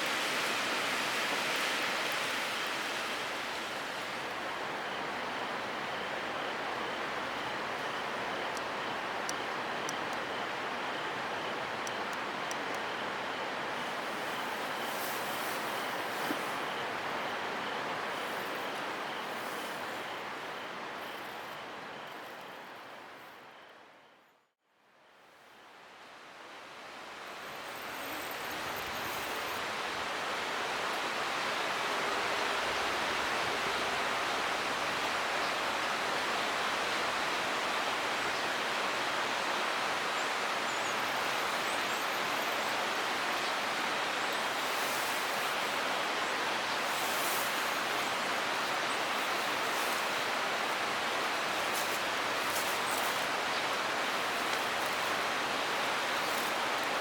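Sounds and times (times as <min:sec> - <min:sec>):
flowing water rushing: 0:39.7 - 0:57.0.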